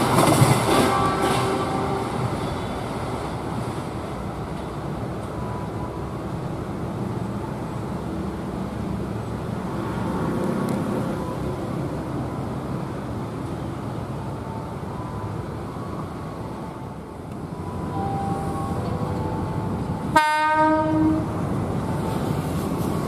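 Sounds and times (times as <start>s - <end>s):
electric train rumbling: 0.0s - 23.0s.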